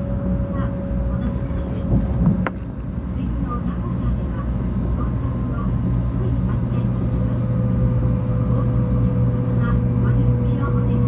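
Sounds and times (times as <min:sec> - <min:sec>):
train cabin rumble: 0:00.0 - 0:11.0.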